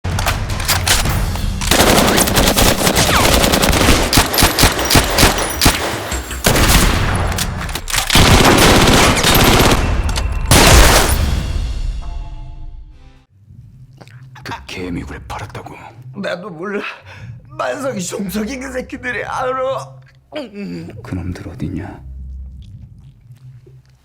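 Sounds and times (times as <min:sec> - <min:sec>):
automatic gunfire bursts: 0:01.6 - 0:11.1.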